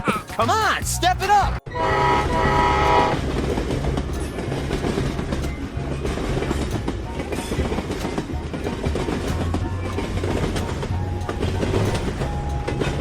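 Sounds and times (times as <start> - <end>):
train rumbling on rails: 1.6 - 13.0.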